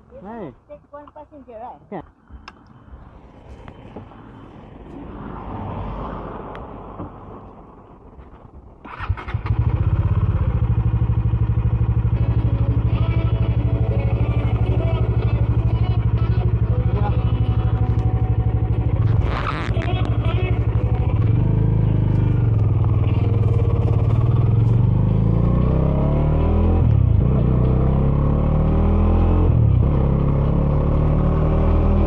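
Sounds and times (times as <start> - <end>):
motorcycle engine idling: 8.9 - 25.4.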